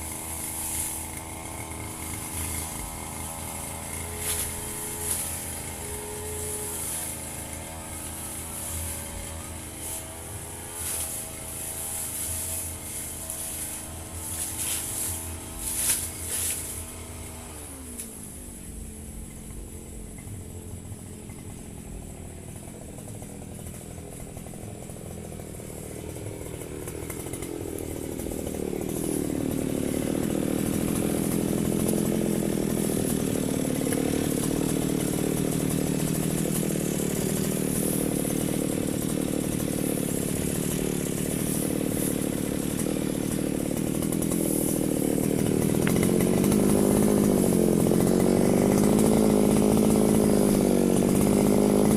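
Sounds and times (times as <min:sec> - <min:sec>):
brush cutter engine revving: 0:00.0 - 0:51.9.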